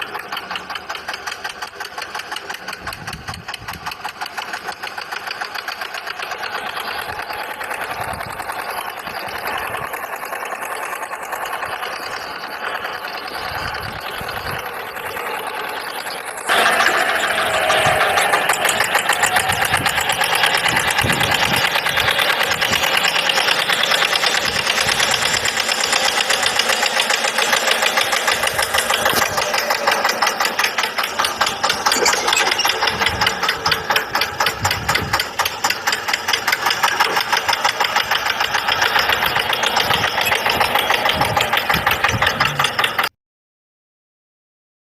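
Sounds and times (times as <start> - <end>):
tractor engine chugging: 0.0 - 43.1.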